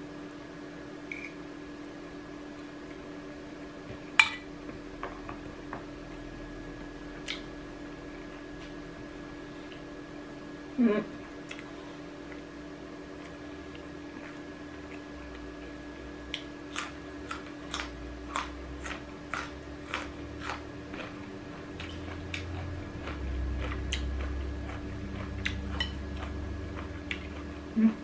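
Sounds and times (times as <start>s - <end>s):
steady low hum: 0.0s - 28.0s
person chewing food: 11.4s - 12.5s, 13.2s - 28.0s.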